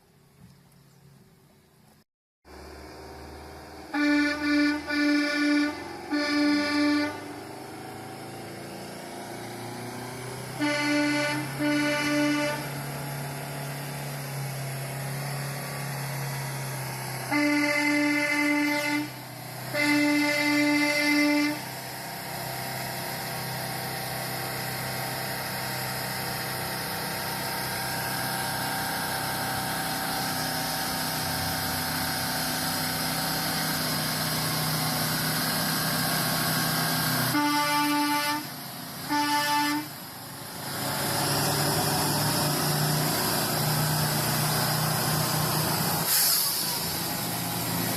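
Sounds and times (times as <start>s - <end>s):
diesel engine droning: 2.5s - 47.9s
truck air horn blasts: 3.9s - 7.5s, 10.6s - 13.0s, 17.3s - 21.8s, 37.3s - 40.1s.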